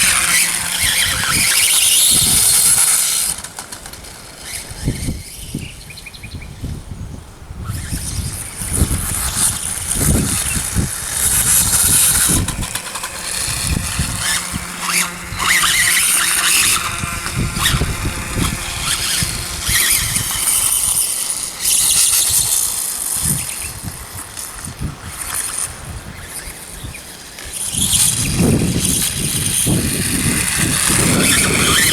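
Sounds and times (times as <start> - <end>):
model dirt bike motor surging: 0.0 - 31.9.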